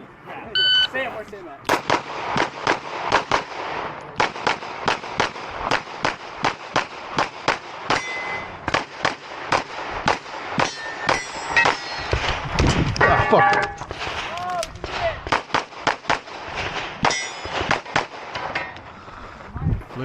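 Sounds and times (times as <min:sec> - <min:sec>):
pistol shots in fast strings: 0:01.7 - 0:08.1
steel target ringing: 0:07.9 - 0:08.7, 0:10.6 - 0:12.4, 0:13.0 - 0:13.9, 0:17.0 - 0:17.7.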